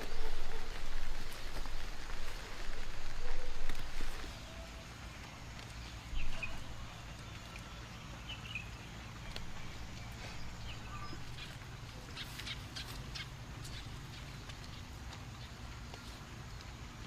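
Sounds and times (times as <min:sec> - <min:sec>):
faint bird chirps: 0:03.2 - 0:14.4.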